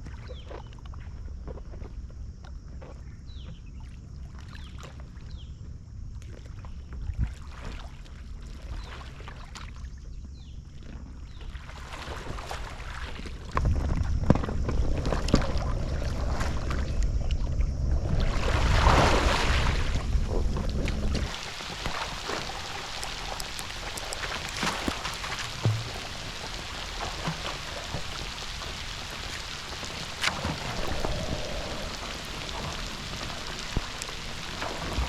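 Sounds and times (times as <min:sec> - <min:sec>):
water sloshing and paddle splashes: 0:06.2 - 0:09.9, 0:11.4 - 0:35.0
wind on microphone: 0:13.3 - 0:35.0.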